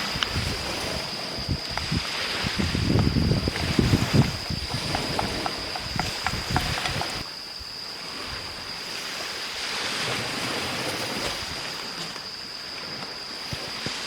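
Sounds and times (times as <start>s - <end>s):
waves washing onto beach: 0.0s - 7.3s, 7.9s - 14.0s
steady high-pitched tone: 2.5s - 8.8s.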